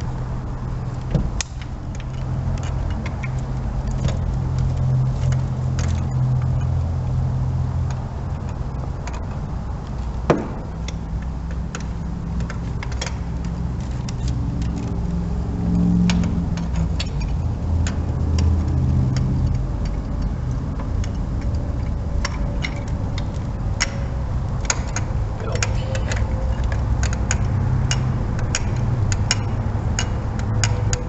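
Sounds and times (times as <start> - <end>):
low hum: 0.0 - 31.0
metallic ratchet clicks: 10.8 - 31.0.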